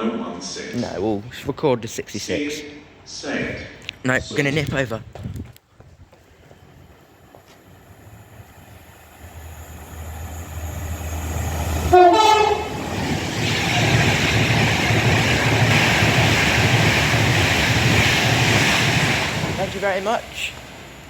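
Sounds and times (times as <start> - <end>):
locomotive engine hum: 6.4 - 21.0
train horn blast: 11.8 - 12.9.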